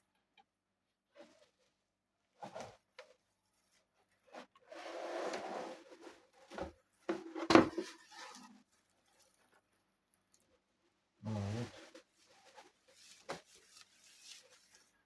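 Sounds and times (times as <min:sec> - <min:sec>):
rustling scrape of packing: 0:03.7 - 0:06.6, 0:11.3 - 0:15.0.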